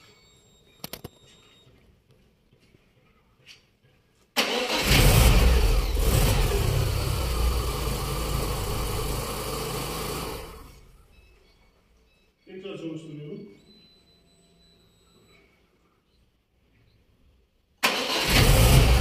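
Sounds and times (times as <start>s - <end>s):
starter motor cranking: 4.4s - 11.0s, 17.8s - 19.0s
petrol engine idling: 4.5s - 11.1s.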